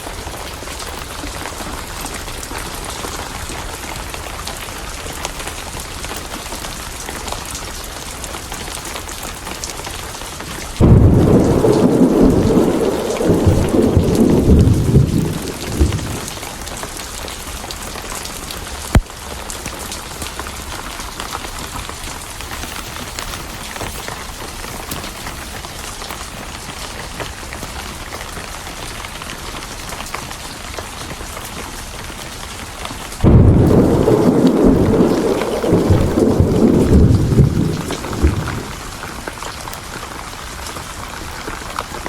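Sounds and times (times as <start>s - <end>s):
steady rain: 0.0s - 42.0s
thunder rumbling: 10.8s - 16.7s, 33.2s - 39.5s.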